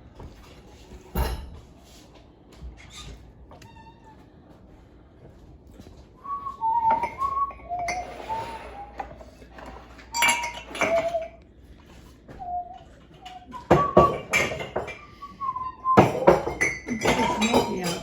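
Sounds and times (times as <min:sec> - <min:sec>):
person whistling: 0:06.2 - 0:09.5, 0:10.1 - 0:11.4, 0:12.3 - 0:16.6
dishes and glasses clinking: 0:06.8 - 0:11.4, 0:13.2 - 0:18.0.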